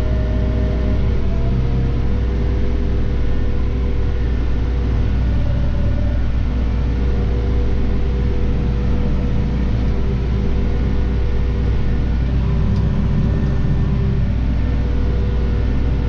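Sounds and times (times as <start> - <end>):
tractor engine drone: 0.0 - 16.0.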